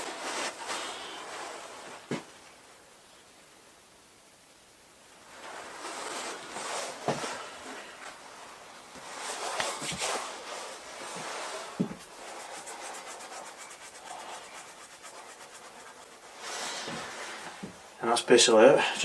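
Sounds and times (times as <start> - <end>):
stone rubbing and scraping: 11.9 - 17.0
scratchy ticks: 12.0 - 16.4.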